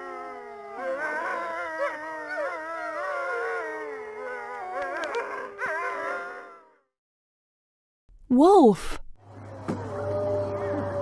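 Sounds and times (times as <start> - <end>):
wolves howling: 0.0 - 6.8.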